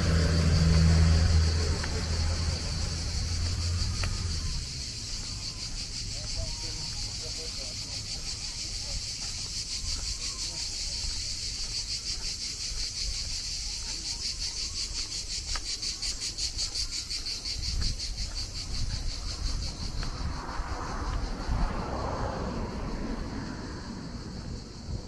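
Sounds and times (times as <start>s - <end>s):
low outdoor rumble: 0.0s - 6.0s
insects chirping chorus: 0.0s - 25.0s.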